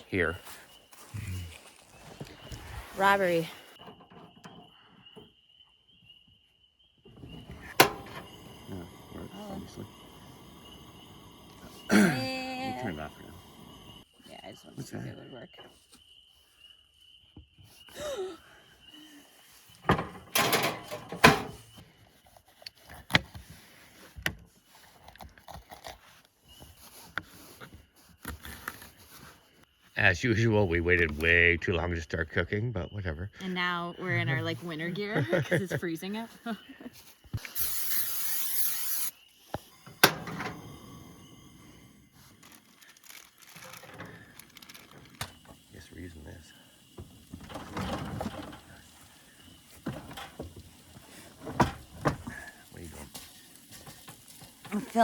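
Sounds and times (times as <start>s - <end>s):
rustling and scraping: 0.3s - 5.2s, 19.5s - 29.9s, 40.0s - 55.0s
knocks and clunks: 7.1s - 8.4s, 19.8s - 21.6s, 47.0s - 48.8s, 49.8s - 52.5s
hiss: 7.6s - 14.1s, 37.4s - 42.7s, 44.3s - 55.0s.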